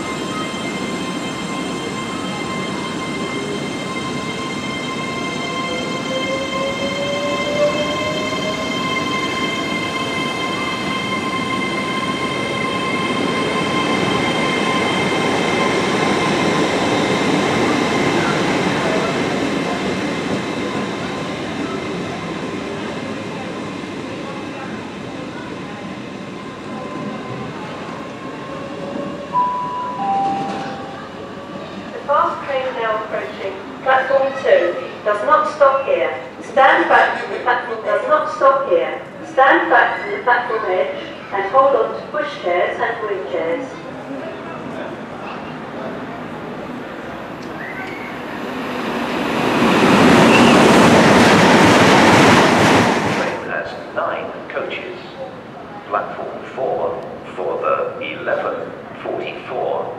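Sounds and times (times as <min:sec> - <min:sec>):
passenger train passing at speed: 0:00.0 - 0:59.9
train rumbling: 0:43.8 - 0:59.9.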